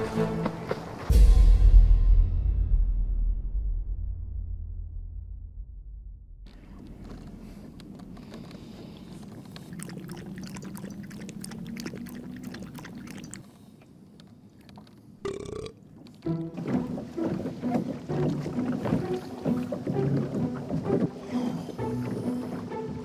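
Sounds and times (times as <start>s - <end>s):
background music: 0.0s - 3.0s, 16.2s - 23.0s
man burping loudly: 15.2s - 15.8s.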